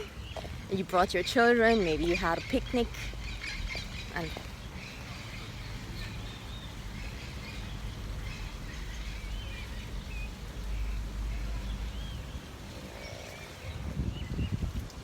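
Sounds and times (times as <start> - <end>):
birds chirping: 0.0 - 15.0
steady low rumble: 0.0 - 15.0.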